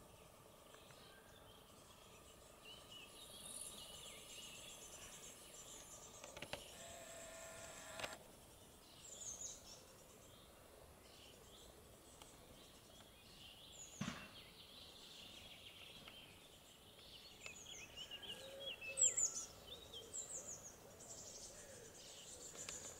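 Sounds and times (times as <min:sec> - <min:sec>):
faint outdoor ambience: 0:00.0 - 0:22.9
small birds chirping: 0:00.0 - 0:22.9
single knock: 0:14.0 - 0:14.4.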